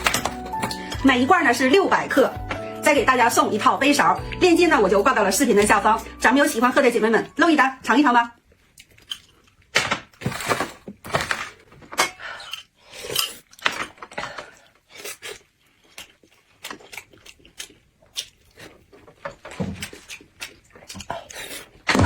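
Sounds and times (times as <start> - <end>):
eating crunches and clicks: 8.5 - 9.7, 12.4 - 21.9.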